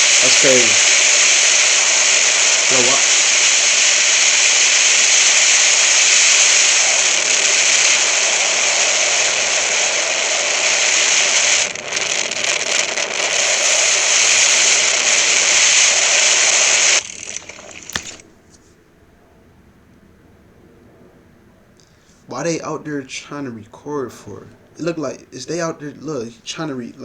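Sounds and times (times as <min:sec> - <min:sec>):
loud rushing roar: 0:00.0 - 0:18.2
faint clicks: 0:00.0 - 0:18.8, 0:21.8 - 0:22.4.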